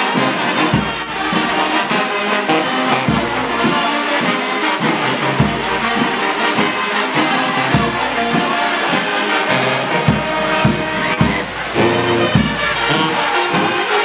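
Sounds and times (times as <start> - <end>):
brass band playing a march: 0.0 - 14.0
bass drum beat: 2.9 - 3.9, 5.2 - 6.3, 7.5 - 8.6, 9.5 - 13.2.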